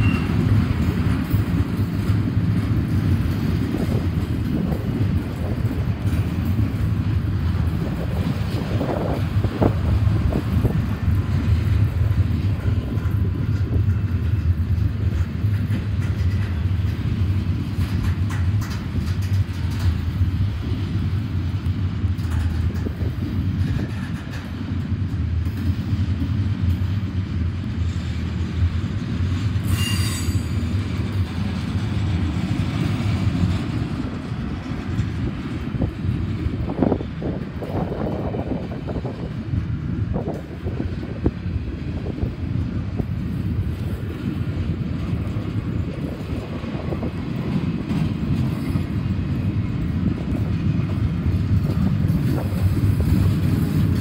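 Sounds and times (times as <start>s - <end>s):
freight train wheels rumbling: 0.0s - 54.0s
high-pitched wheel squeal: 29.7s - 30.6s.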